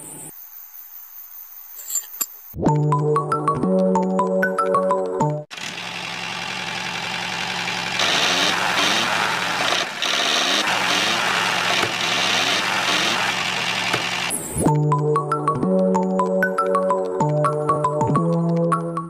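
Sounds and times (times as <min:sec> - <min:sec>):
small motor running: 0:05.5 - 0:14.6.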